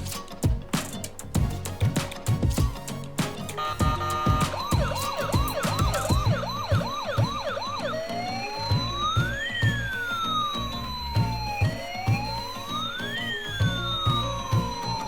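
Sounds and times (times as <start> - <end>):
background music with beat: 0.0 - 15.0
electronic siren yelp and wail: 3.6 - 15.0.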